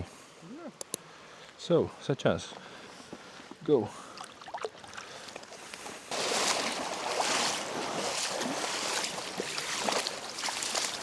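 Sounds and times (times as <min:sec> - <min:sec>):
water splashing and sloshing: 0:03.0 - 0:11.0.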